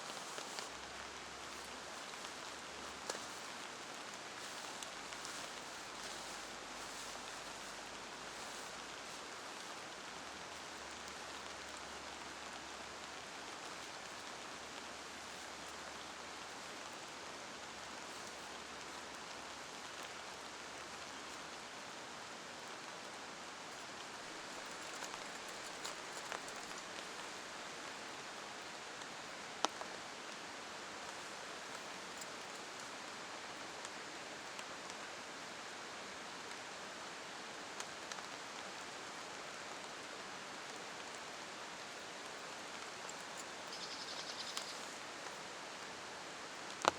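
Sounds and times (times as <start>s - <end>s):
steady rain falling: 0.0s - 46.9s
light drip ticks: 23.7s - 30.4s, 31.0s - 33.0s, 40.6s - 45.4s, 46.6s - 46.9s.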